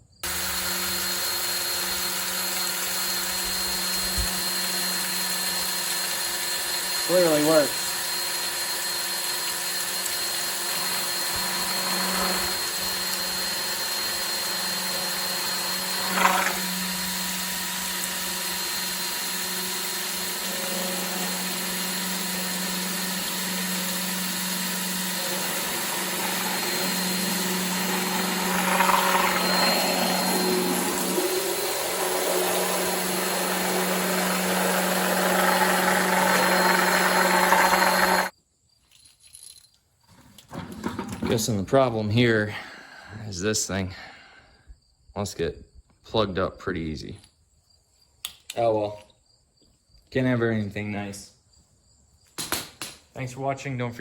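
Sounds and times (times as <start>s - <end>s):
cordless drill running pump: 0.2s - 38.3s.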